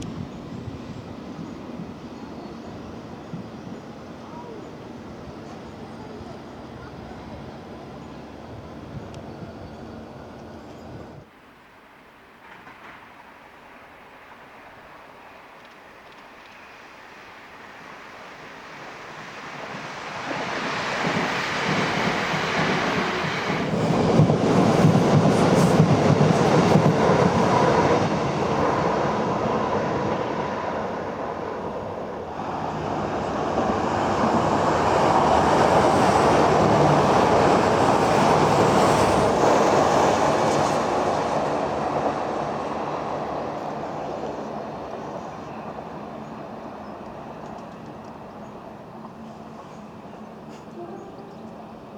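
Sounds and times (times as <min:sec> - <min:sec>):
train noise: 0:00.0 - 0:51.9.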